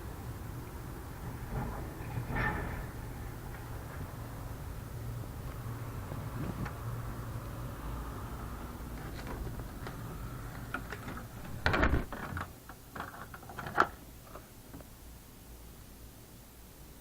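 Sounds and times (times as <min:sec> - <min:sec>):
low mechanical hum: 0:00.0 - 0:17.0
knocks and rustles: 0:01.2 - 0:04.3, 0:05.4 - 0:06.9, 0:08.9 - 0:14.9.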